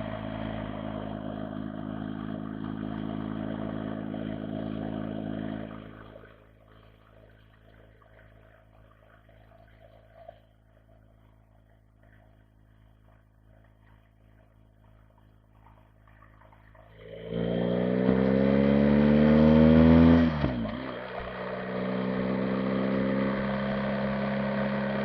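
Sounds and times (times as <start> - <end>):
motorcycle engine pulling away: 0.0 - 6.3, 16.9 - 25.0.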